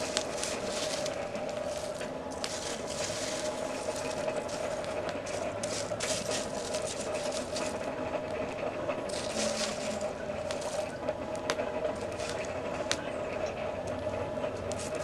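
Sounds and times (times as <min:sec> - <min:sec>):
rustling bursts: 0:00.0 - 0:11.0, 0:11.9 - 0:12.7
fire crackling: 0:00.0 - 0:15.0
hand-crank blower whirring: 0:00.0 - 0:15.0.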